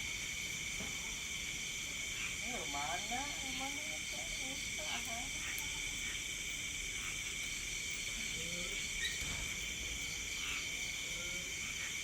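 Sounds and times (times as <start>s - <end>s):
crickets and insects chirping: 0.0s - 12.0s.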